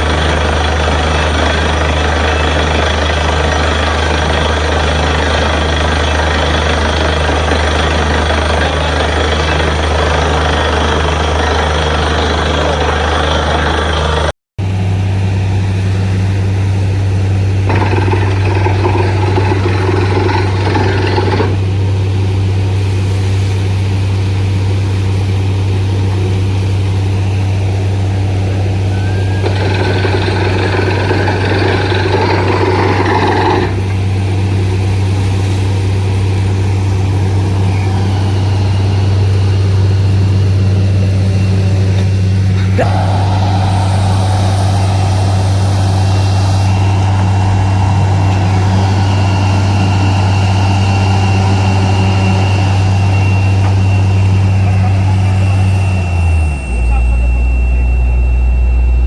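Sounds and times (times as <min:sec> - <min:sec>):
harsh grinding noise: 0:00.0 - 0:14.3, 0:17.6 - 0:21.9, 0:27.6 - 0:34.6, 0:37.1 - 0:55.0
drilling machine deep hum: 0:00.0 - 0:59.0.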